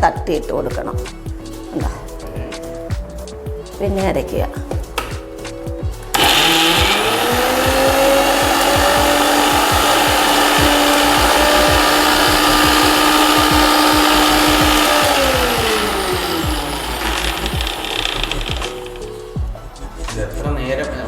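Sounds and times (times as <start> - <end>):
mixer grinder motor whining: 6.0 - 19.5.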